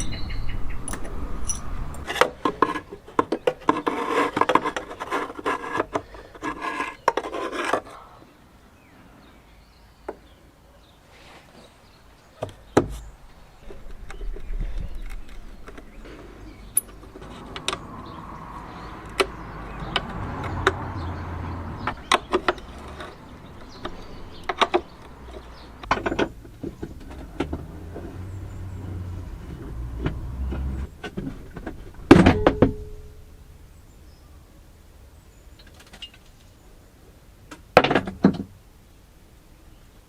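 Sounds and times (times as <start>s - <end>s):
scraping and rustling: 1.0s - 8.1s, 12.6s - 33.1s
hand tools clicking and tapping: 16.8s - 17.9s, 21.8s - 27.7s
ringing metallic clank: 32.2s - 33.3s.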